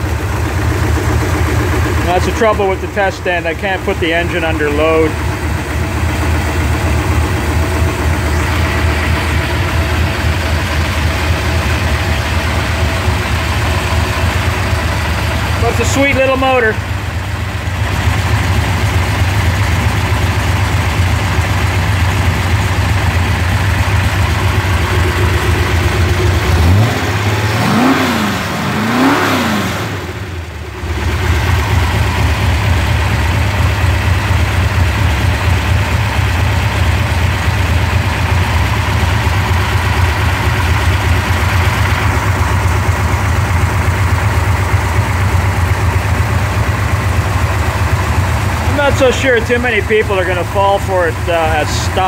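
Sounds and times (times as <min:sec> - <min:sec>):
engine idling and revving: 0:00.0 - 0:52.0.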